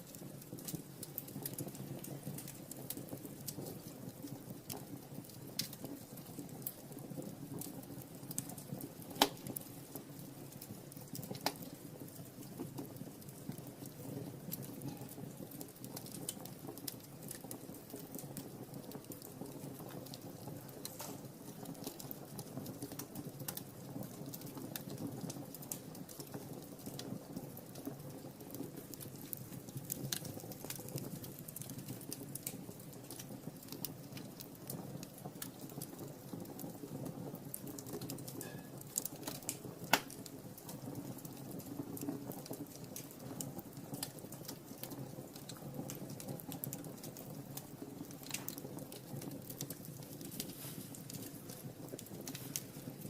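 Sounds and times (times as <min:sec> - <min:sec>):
burning wood popping: 0:00.0 - 0:53.0
wood fire crackling: 0:00.0 - 0:53.0.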